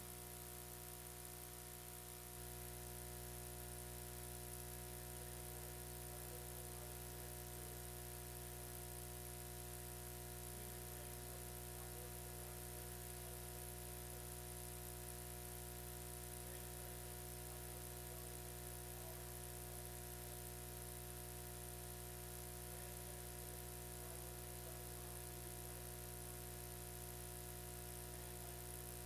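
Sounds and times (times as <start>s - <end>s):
electrical hum and buzz: 0.0s - 29.0s
constant hiss: 5.2s - 7.5s, 8.5s - 14.8s, 16.2s - 29.0s.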